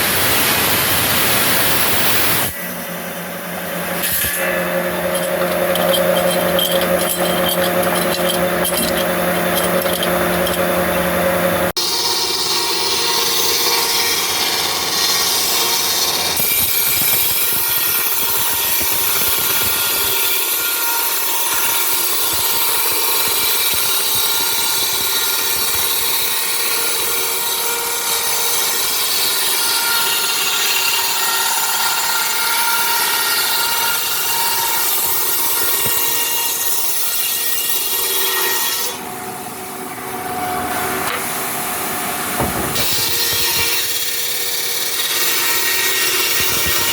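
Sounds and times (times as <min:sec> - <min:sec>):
saw cutting timber: 0:02.3 - 0:46.9.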